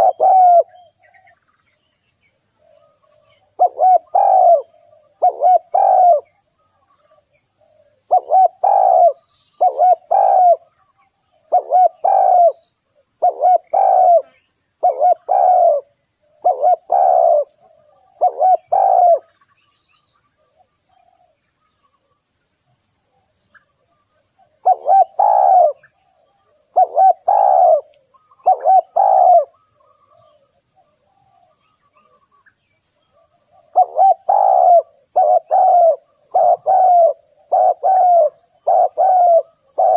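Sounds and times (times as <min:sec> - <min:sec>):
dove cooing: 0:00.0 - 0:01.4, 0:02.6 - 0:10.7, 0:11.4 - 0:12.6, 0:13.2 - 0:19.4, 0:24.4 - 0:32.2, 0:33.1 - 0:39.9.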